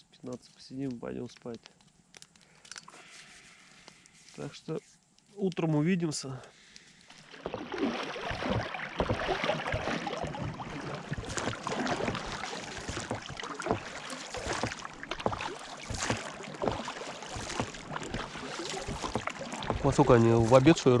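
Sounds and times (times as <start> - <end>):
water lapping around a boat: 7.2 - 21.0.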